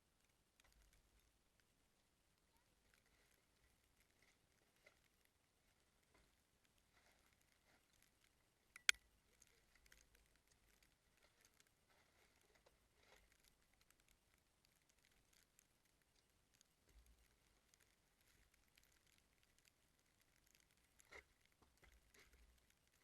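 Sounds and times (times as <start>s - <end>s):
faint ticks: 0.0s - 23.0s
sharp click: 8.8s - 9.0s.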